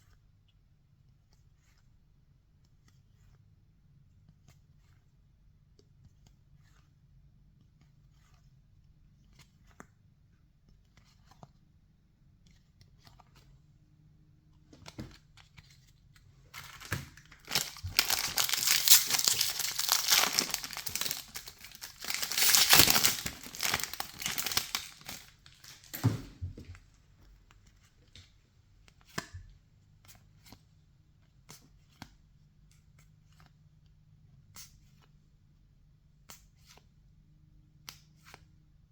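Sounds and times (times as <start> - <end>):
wrapper tearing and crinkling: 16.6 - 26.1.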